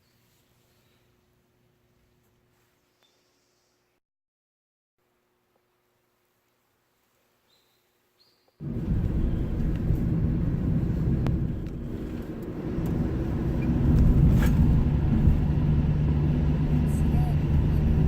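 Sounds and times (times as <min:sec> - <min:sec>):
low vehicle rumble: 0:08.6 - 0:18.0.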